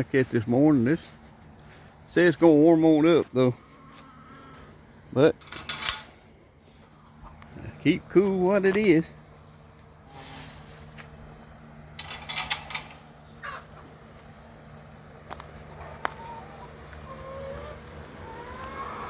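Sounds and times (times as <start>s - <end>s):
steady low hum: 0.0s - 19.0s
hens clucking softly: 3.5s - 5.0s, 6.6s - 7.8s, 13.0s - 19.0s.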